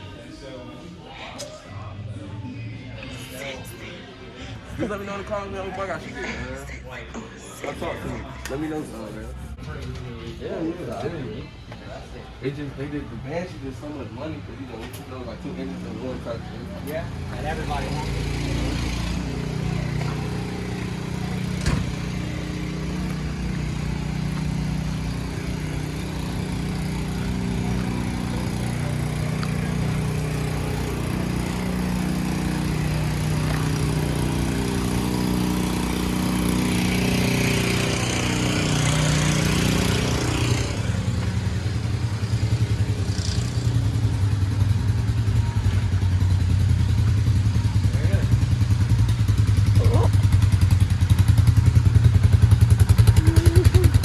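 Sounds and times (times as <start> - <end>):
motorcycle engine running: 15.3 - 54.0.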